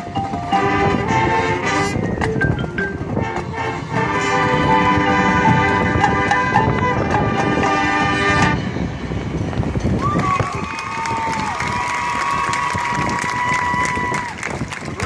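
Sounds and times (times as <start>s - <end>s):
marching band playing: 0.0s - 9.8s
held brass chord: 0.2s - 9.0s.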